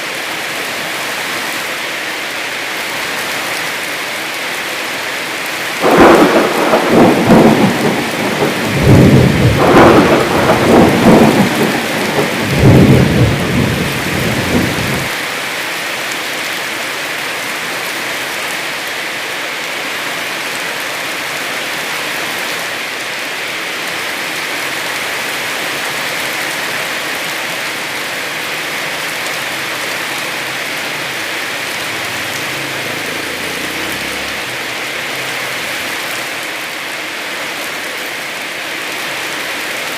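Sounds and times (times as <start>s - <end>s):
heavy rain: 0.0s - 39.9s
thunder rumbling: 5.8s - 15.1s.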